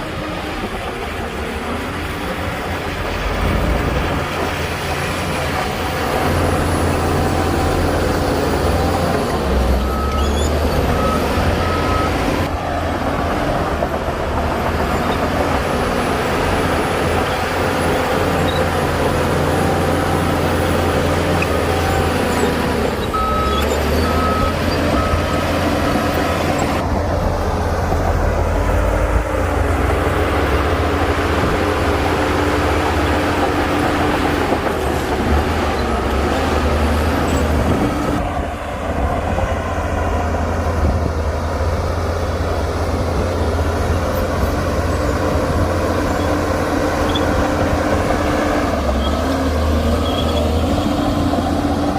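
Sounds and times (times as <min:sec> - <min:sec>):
heavy diesel machinery running: 0:00.0 - 0:51.9
reversing alarm beeps: 0:09.8 - 0:12.5, 0:23.1 - 0:26.2.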